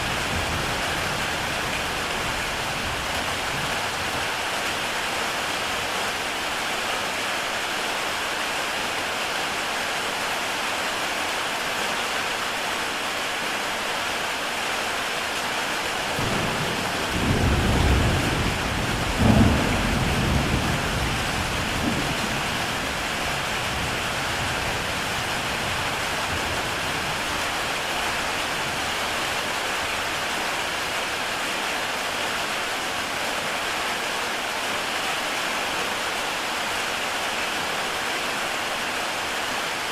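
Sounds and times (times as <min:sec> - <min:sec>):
heavy rain on a tile roof: 0:00.0 - 0:39.9
thunder rumbling: 0:16.2 - 0:25.0.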